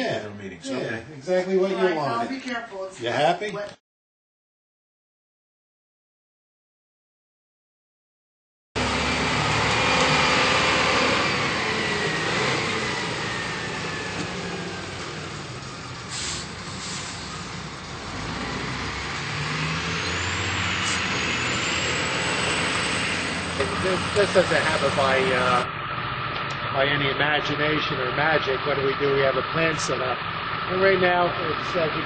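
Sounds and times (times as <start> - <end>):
heavy truck engine running: 8.8 - 32.0.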